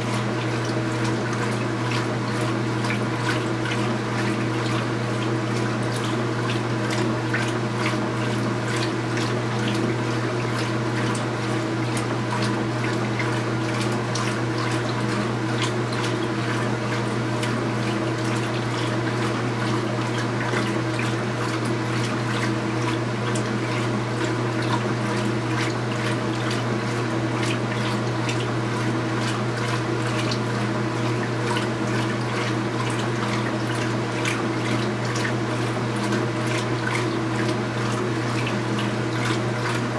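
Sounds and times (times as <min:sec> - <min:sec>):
washing machine motor hum: 0:00.0 - 0:39.9
water sloshing in tub: 0:00.0 - 0:39.9.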